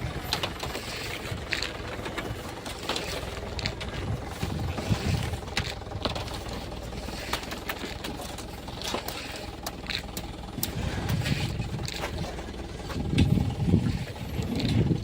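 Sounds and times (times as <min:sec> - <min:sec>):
engine running at low revs: 0:00.0 - 0:15.0.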